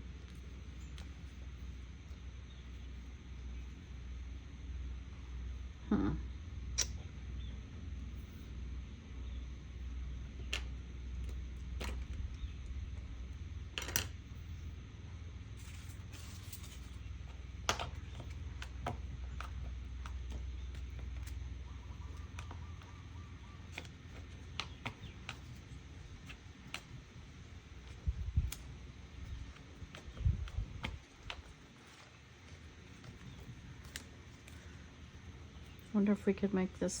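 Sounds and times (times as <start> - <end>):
low hum: 0.0 - 37.0
paper clicks and taps: 29.4 - 34.6.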